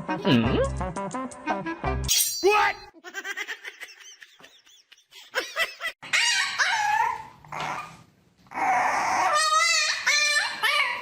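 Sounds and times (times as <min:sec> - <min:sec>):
pet animal crying: 0:08.5 - 0:11.0.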